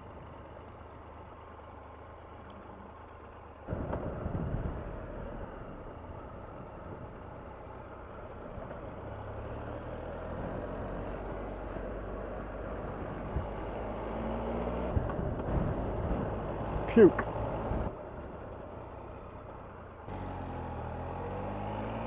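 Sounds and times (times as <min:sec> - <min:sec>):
motorcycle engine running: 0:00.0 - 0:09.7
wind and road noise: 0:00.0 - 0:22.0.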